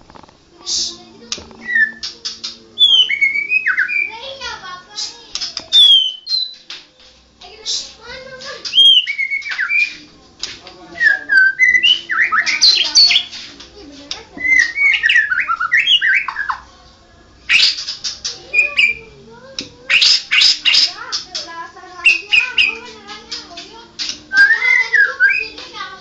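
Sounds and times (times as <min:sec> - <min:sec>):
songbird whistling phrases: 0:01.6 - 0:04.3, 0:05.7 - 0:06.6, 0:08.6 - 0:10.0, 0:11.0 - 0:13.4, 0:14.4 - 0:16.6, 0:17.5 - 0:19.2, 0:19.9 - 0:21.1, 0:22.0 - 0:22.9, 0:24.0 - 0:25.6.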